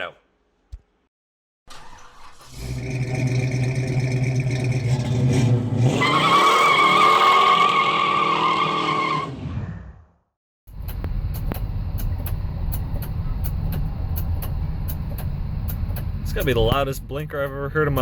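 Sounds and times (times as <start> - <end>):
car engine revving: 1.7 - 9.0
high tyre squeal: 1.7 - 10.0.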